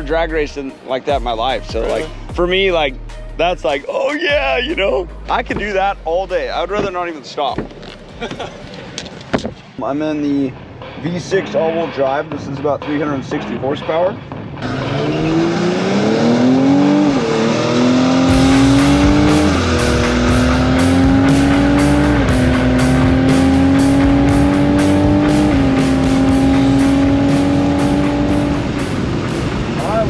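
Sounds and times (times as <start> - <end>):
car engine accelerating hard: 14.6 - 30.0.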